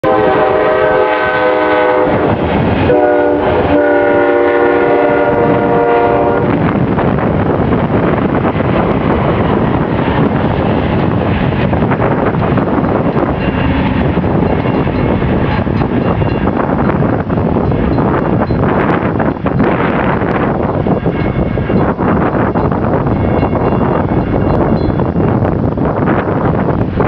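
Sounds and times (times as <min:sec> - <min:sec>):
locomotive air horn: 0:00.0 - 0:06.6
train rumble and wheel clatter: 0:00.0 - 0:27.0.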